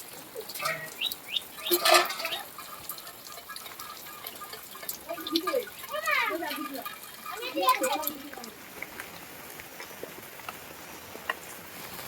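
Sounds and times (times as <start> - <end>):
heavy rain falling: 0.0 - 12.0
rush of water: 0.0 - 12.0
falling bird chirps: 0.6 - 4.7.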